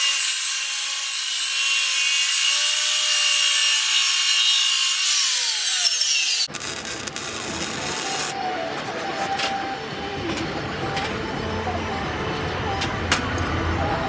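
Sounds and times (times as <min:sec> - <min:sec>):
grinder cutting steel tubing: 0:00.0 - 0:08.4.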